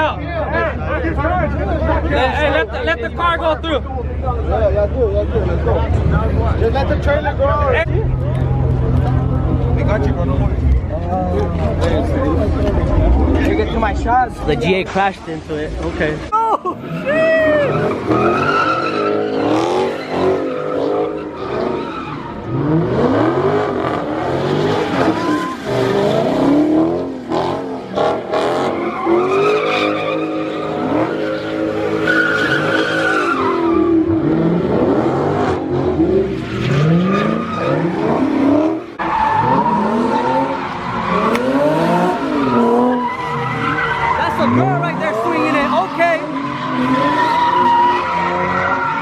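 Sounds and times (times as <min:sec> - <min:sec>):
car engines revving: 0:00.0 - 0:49.0
tyres squealing: 0:16.9 - 0:22.6, 0:28.6 - 0:34.2.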